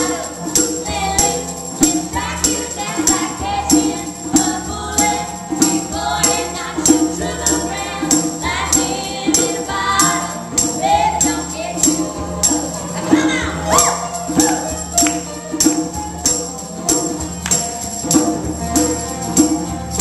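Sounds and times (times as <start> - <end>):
voices singing in harmony: 0.0 - 18.1
tambourine struck on the beat: 0.0 - 20.0.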